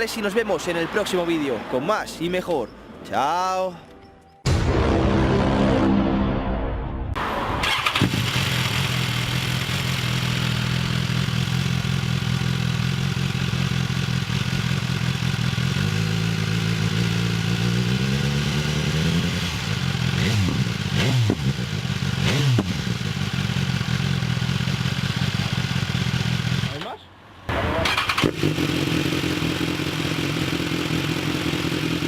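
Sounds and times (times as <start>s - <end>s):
motorcycle engine idling and revving: 7.6s - 32.0s.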